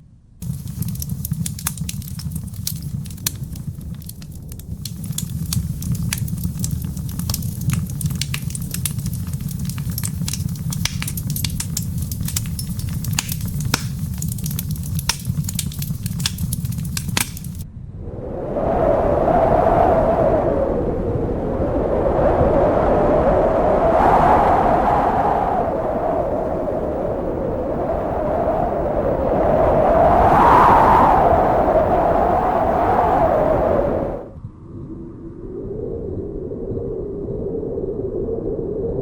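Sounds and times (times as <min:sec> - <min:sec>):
fire crackling and popping: 0:00.4 - 0:17.6, 0:24.1 - 0:34.3
low rumble: 0:00.4 - 0:30.1.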